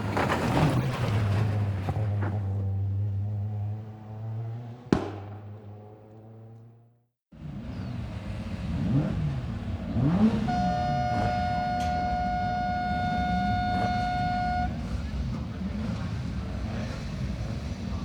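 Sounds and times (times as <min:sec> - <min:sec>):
racing car engine revving: 0:07.4 - 0:18.0.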